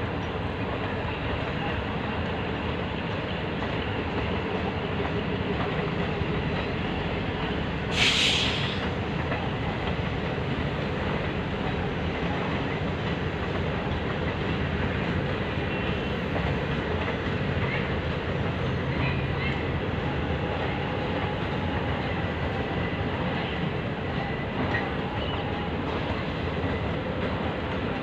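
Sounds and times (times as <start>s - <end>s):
short hiss: 7.9s - 8.8s.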